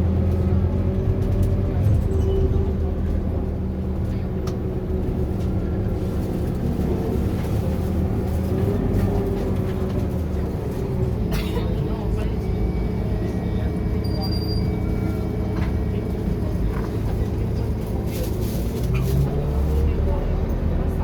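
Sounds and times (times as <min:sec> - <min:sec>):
bus diesel engine droning: 0:00.0 - 0:21.0.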